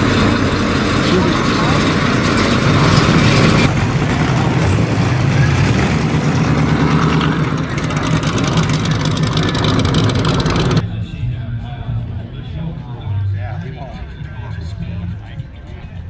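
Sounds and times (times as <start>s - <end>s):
car engine running: 0.0s - 10.8s
voices: 0.0s - 16.0s.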